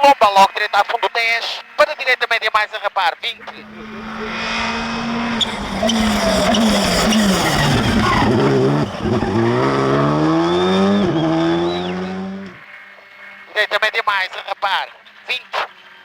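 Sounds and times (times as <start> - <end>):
rally car engine revving: 3.4 - 12.6
thin high squeal: 3.5 - 9.3.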